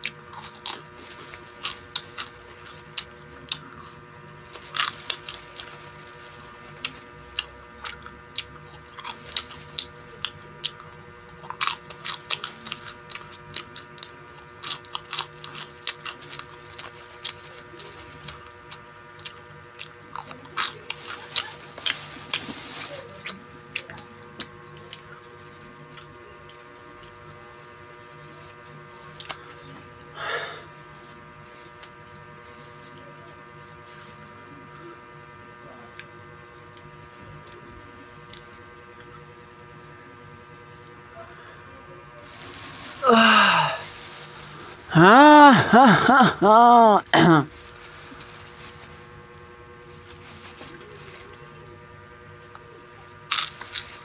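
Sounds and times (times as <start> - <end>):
chewing and crunching: 0.0 - 30.1, 35.8 - 39.6, 52.4 - 54.0
background hum: 0.0 - 54.0.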